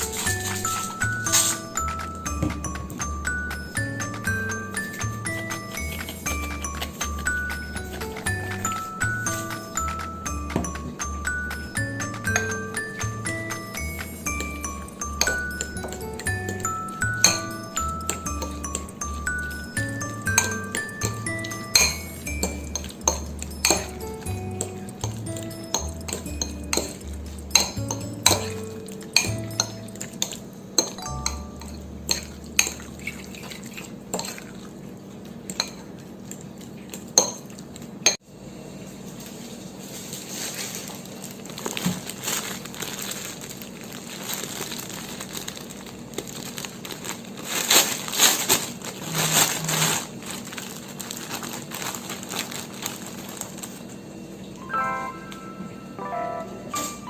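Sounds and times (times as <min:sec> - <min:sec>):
metal utensils clinking on dishes: 0:00.0 - 0:34.5.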